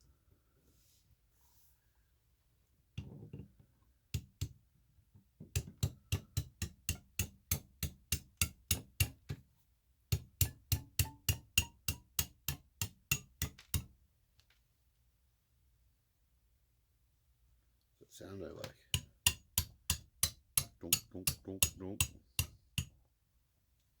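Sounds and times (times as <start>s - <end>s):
hammer striking chisel on rock: 5.5s - 9.4s, 10.1s - 13.9s, 18.9s - 23.0s.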